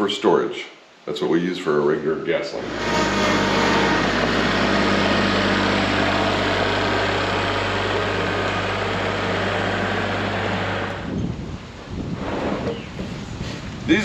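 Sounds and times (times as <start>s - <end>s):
engine idling: 2.6s - 11.2s.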